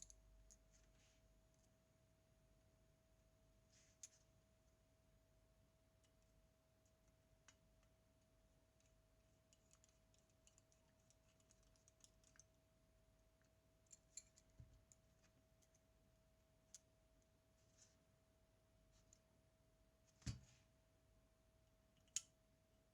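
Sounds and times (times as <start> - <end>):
faint small clicks: 22.0 - 22.4.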